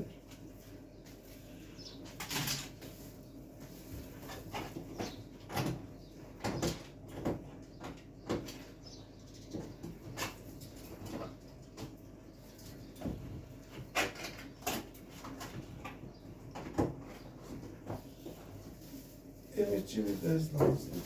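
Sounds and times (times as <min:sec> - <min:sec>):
freezer door knocks and rattles: 0:04.5 - 0:08.8, 0:12.9 - 0:18.1, 0:20.5 - 0:21.0.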